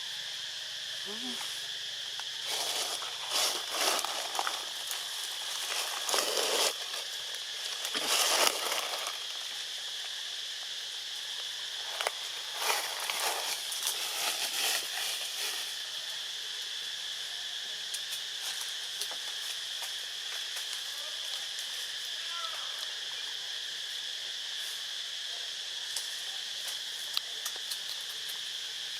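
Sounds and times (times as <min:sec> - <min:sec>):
insects droning: 0:00.0 - 0:28.9
rustling and crackling: 0:02.5 - 0:09.4.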